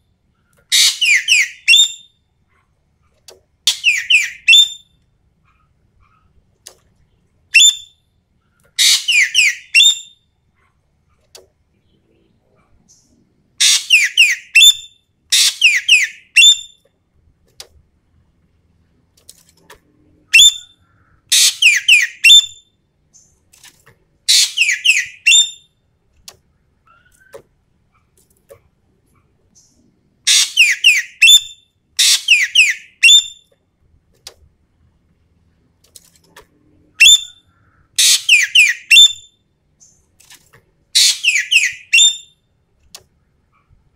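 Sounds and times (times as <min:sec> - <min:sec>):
bird shrill descending calls: 0:41.0 - 0:42.3.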